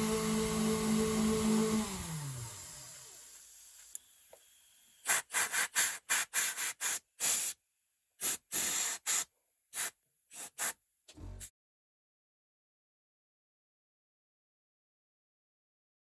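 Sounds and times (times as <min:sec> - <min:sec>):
short hissing spray spurts: 0:05.0 - 0:07.6, 0:08.2 - 0:11.5.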